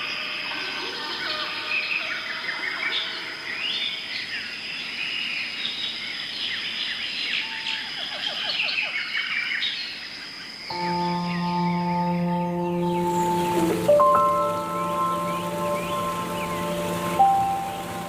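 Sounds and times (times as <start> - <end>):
birds chirping in forest chorus: 0.0 - 18.0
sustained music tones: 10.7 - 18.0.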